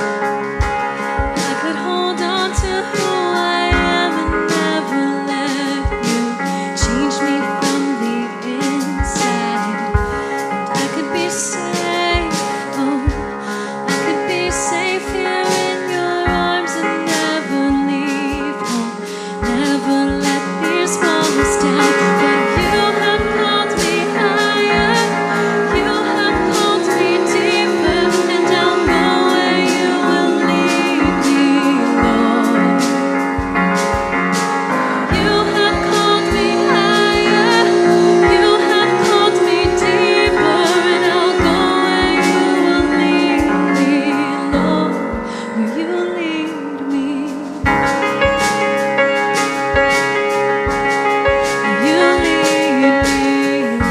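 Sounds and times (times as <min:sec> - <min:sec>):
band playing steady beat: 0:00.0 - 0:46.6, 0:47.2 - 0:53.9
woman singing: 0:01.3 - 0:33.4, 0:34.3 - 0:48.0, 0:51.6 - 0:53.9
choir singing: 0:21.6 - 0:32.6, 0:34.8 - 0:44.6.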